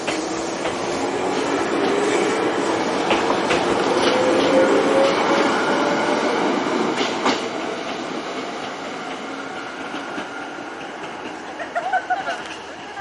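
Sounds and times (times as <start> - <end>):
train running along track: 0.0 - 13.0
wheels clacking over rail joint: 3.0 - 5.5.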